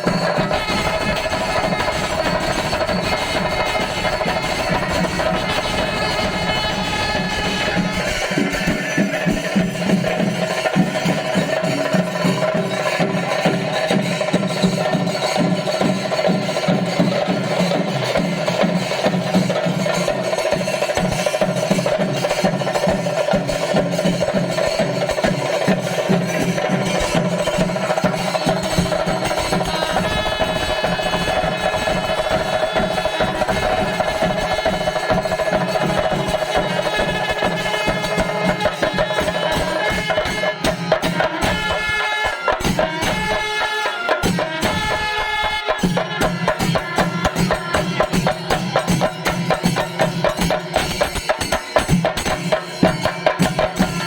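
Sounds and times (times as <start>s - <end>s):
wind instrument holding notes: 0.0s - 12.0s, 25.5s - 48.2s
cymbals: 0.0s - 54.0s
rapid drumming: 0.0s - 54.0s.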